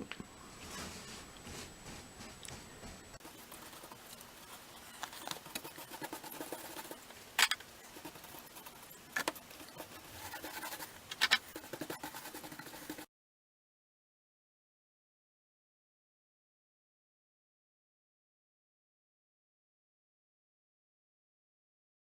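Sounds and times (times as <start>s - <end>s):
paintbrush scratching on plaster: 0.6s - 13.1s.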